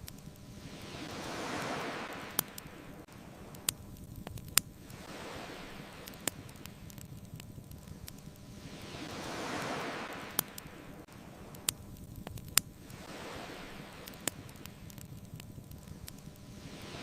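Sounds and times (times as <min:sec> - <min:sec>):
bonfire crackling pops: 0:00.0 - 0:17.0
ocean waves washing in: 0:00.0 - 0:17.0.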